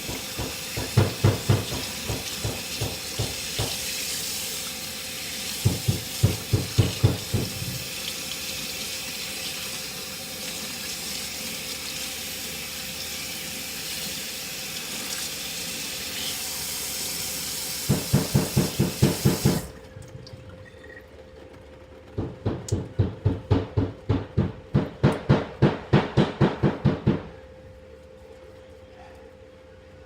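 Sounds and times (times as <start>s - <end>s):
tap water running over hair: 0.0s - 20.4s
rapid knocking upstairs: 5.6s - 7.8s, 21.4s - 27.3s.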